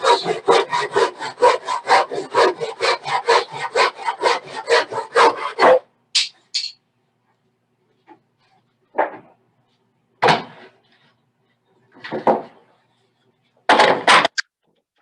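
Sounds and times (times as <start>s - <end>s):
handsaw cutting wood: 0.0s - 5.8s.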